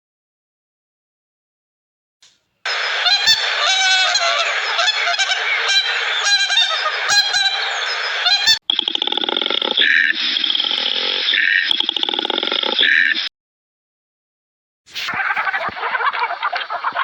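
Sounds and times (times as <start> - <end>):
farm fowl calling: 2.7 - 8.6.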